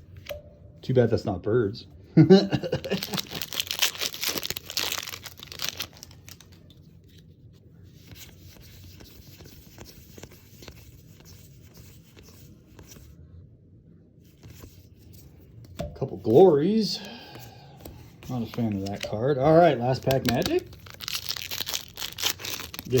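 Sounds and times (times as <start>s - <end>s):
foil wrapper tearing and crinkling: 2.8s - 6.7s, 18.3s - 23.0s
cards being handled: 2.9s - 7.3s, 7.9s - 13.1s, 14.3s - 23.0s.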